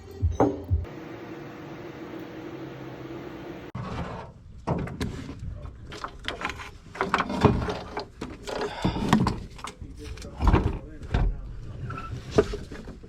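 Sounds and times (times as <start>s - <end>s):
steady hum: 0.8s - 3.8s.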